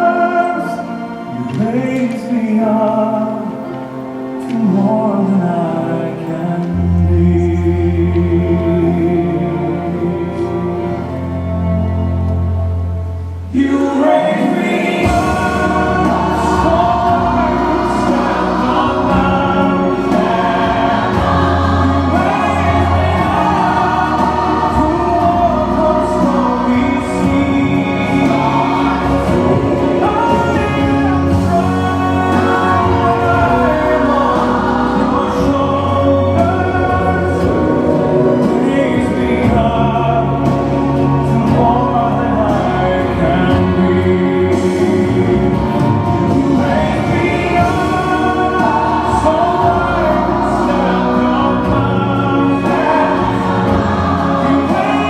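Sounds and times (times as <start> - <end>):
choir singing: 0.0 - 55.0
sustained instrumental accompaniment: 0.0 - 55.0.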